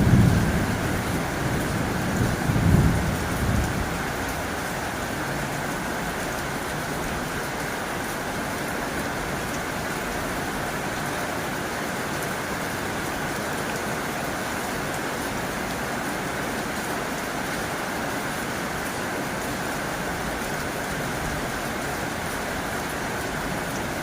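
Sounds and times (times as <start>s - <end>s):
low thunder rumble: 0.0s - 4.6s
heavy rain on a tin roof: 0.0s - 24.0s.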